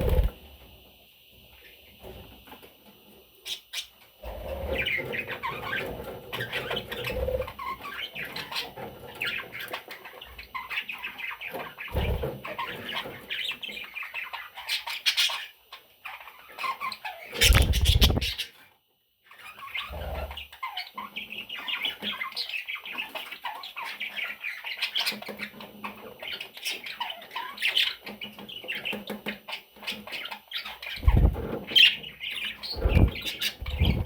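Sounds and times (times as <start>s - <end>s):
budgerigars chirping: 4.7s - 18.5s, 19.4s - 34.0s
low thumps: 32.8s - 34.0s.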